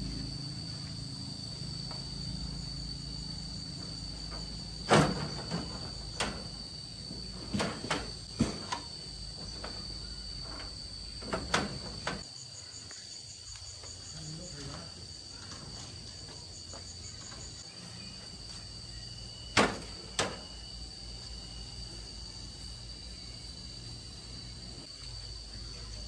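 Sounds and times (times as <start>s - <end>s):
faint pulsing insect trill: 0.0s - 26.0s
insects droning: 0.0s - 26.0s
sharp knocks: 19.5s - 20.6s.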